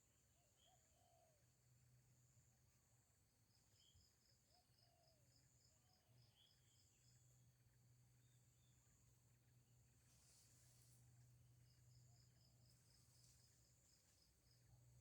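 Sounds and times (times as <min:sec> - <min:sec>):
insect hiss: 0:09.8 - 0:14.7.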